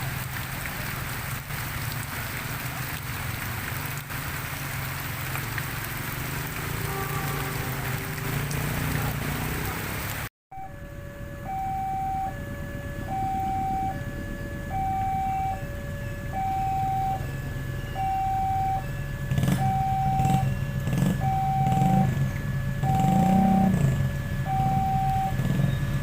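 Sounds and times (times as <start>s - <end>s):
level-crossing two-tone alarm: 10.5s - 26.0s.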